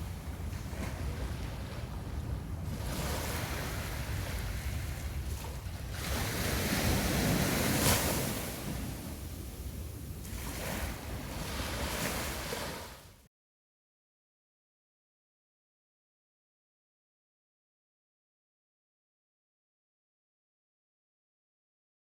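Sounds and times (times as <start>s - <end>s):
ocean surf breaking on beach: 0.0s - 13.2s.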